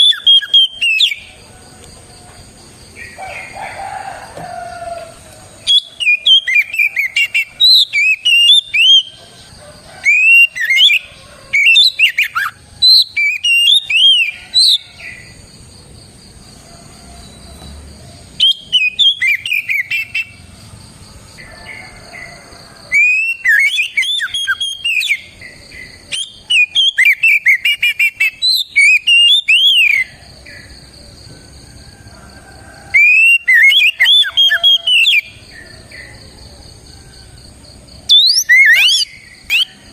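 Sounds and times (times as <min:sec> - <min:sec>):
bird singing whistled notes: 0:00.0 - 0:01.3, 0:05.6 - 0:09.2, 0:10.0 - 0:14.9, 0:18.4 - 0:20.4, 0:22.9 - 0:30.1, 0:33.0 - 0:35.4, 0:38.1 - 0:39.9.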